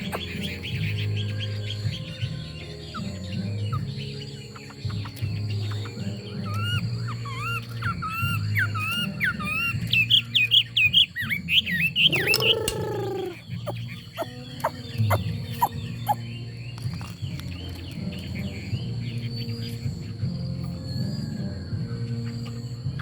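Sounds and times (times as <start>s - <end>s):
bird singing whistled phrases: 0.0s - 23.0s
low falling bird call: 0.0s - 23.0s
soft bird twitters: 0.0s - 23.0s
scattered clicks: 12.2s - 13.0s.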